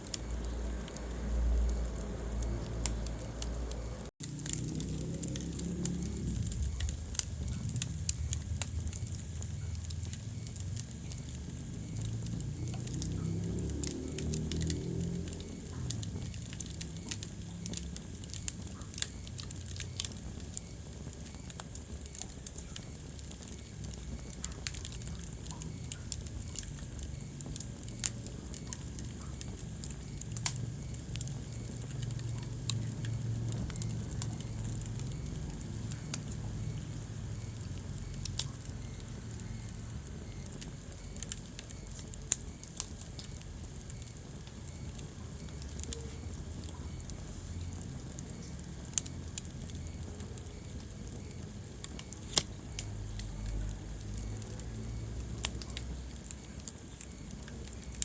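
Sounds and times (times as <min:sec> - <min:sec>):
low rumble of flames: 0:00.0 - 0:58.0
wood fire crackling: 0:00.0 - 0:58.0.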